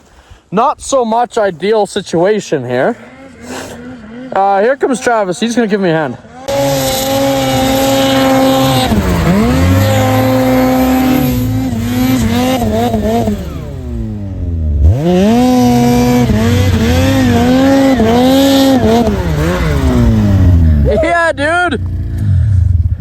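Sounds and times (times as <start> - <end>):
snowmobile engine revving: 2.0 - 23.0.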